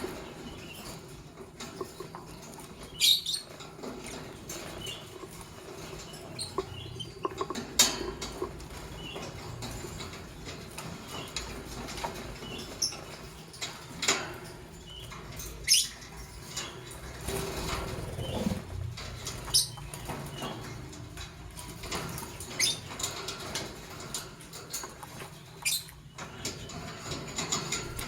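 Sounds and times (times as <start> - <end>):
faint clicks and scratches: 0.0 - 28.0
lovebirds chirping: 19.3 - 20.8, 25.4 - 26.8.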